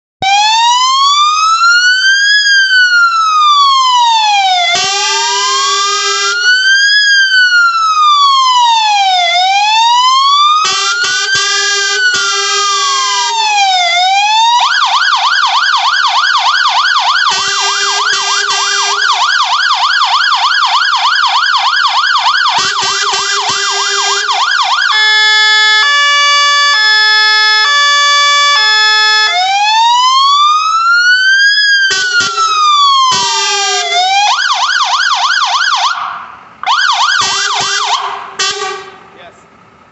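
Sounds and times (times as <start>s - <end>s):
fire engine siren: 0.2s - 39.8s
deep horn blasts: 37.3s - 39.2s.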